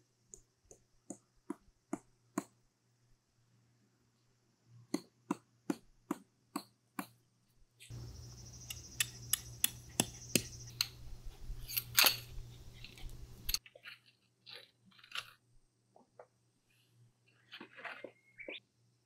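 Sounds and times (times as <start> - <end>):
low hum: 7.9 - 13.6.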